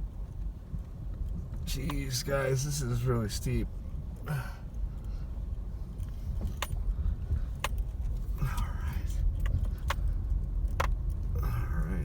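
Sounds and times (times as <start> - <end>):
car rumbling over rocky road: 0.0 - 12.0
clicks and rattles in car: 6.0 - 12.0.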